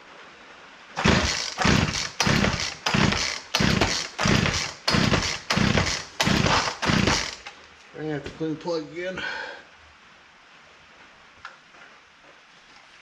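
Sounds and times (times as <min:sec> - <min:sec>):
chainsaw starter cord pulls: 0:01.0 - 0:07.6.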